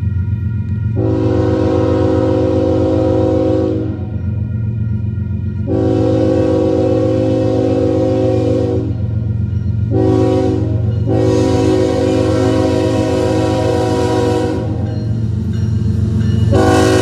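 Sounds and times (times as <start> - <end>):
locomotive rumbling: 0.0 - 17.0
locomotive air horn blasts: 1.0 - 4.2, 5.6 - 9.1, 9.9 - 14.9, 16.4 - 17.0.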